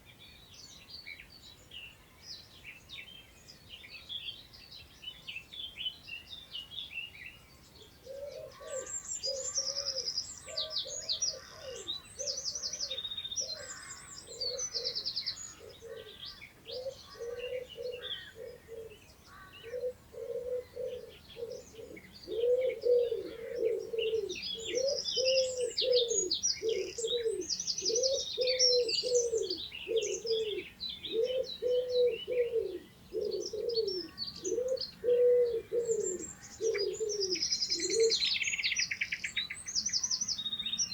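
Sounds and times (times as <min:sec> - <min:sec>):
songbirds chirping and trilling: 0:00.0 - 0:40.9
low cooing call: 0:08.0 - 0:19.0, 0:19.6 - 0:38.4.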